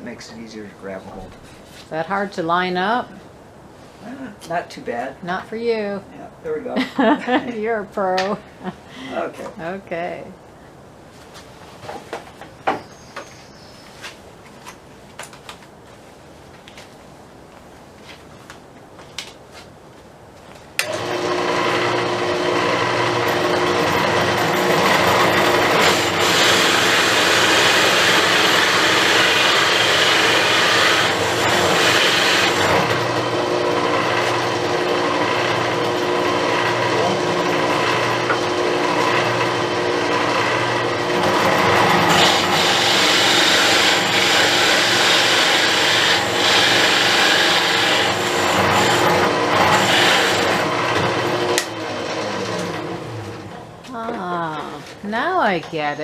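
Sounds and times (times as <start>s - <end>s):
drill press motor humming: 20.8s - 53.6s
hole saw rasping through wood: 20.9s - 53.3s.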